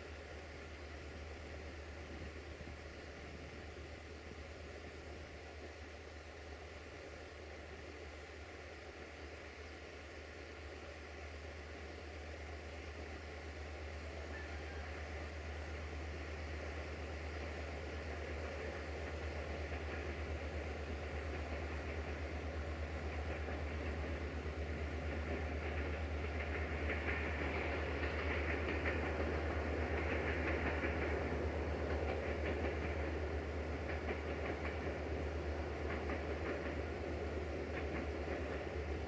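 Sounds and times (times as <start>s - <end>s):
diesel locomotive engine drone: 0.0s - 39.0s
train wheels clicking over rail joints: 16.7s - 39.0s.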